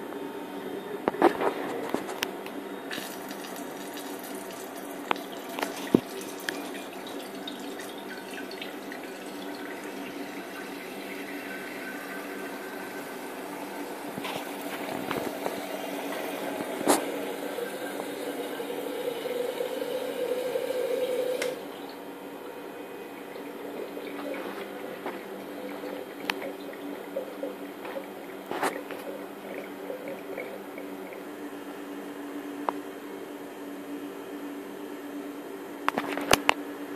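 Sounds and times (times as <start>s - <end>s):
machine hum: 0.0s - 36.9s
coolant flowing and splashing: 2.9s - 21.6s, 22.8s - 31.3s.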